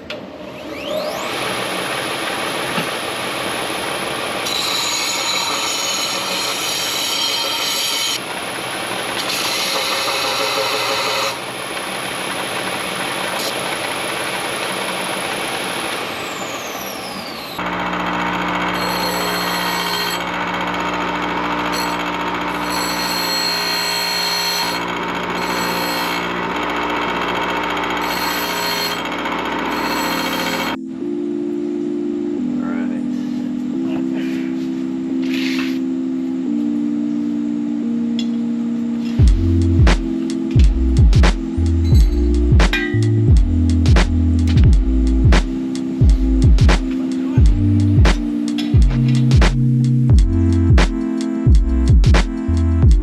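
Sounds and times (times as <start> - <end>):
power tools whining on metal: 0.0 - 30.8
low hum: 46.0 - 46.7.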